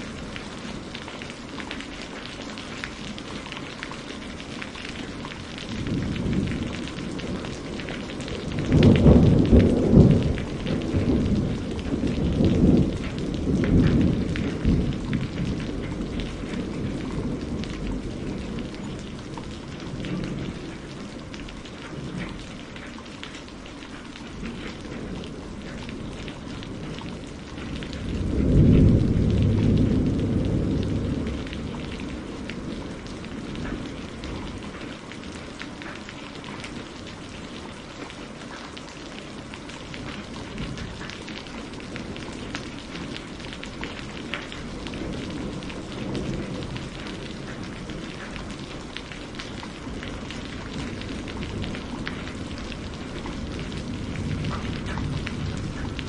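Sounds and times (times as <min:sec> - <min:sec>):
rain drop ticks: 0:00.0 - 0:56.0
steady rain falling: 0:00.0 - 0:56.0
thunder rolling: 0:04.9 - 0:22.4, 0:24.3 - 0:34.8, 0:40.0 - 0:56.0.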